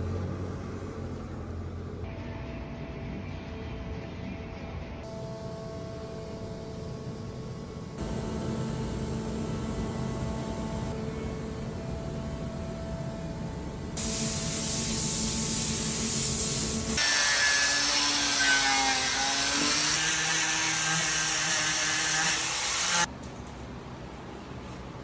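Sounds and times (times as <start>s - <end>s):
power tool whine: 5.1s - 23.1s
hiss of cutting wood: 14.0s - 23.1s
power tool motor hum: 16.6s - 23.1s.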